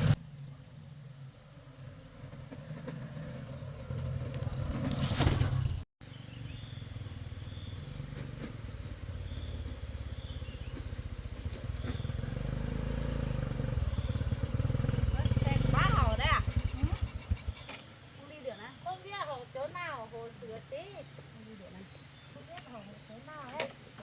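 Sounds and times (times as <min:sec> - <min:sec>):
insects droning: 0:00.0 - 0:04.8, 0:06.0 - 0:24.0
small engine running: 0:06.7 - 0:17.8.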